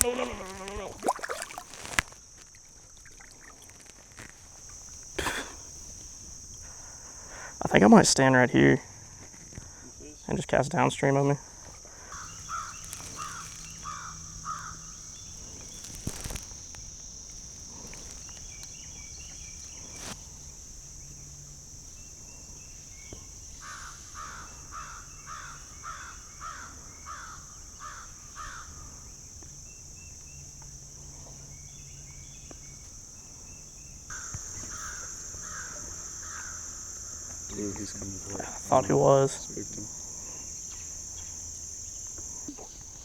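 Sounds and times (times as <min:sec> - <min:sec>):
insect chorus: 0:00.0 - 0:43.0
bird calling short calls: 0:12.1 - 0:16.5.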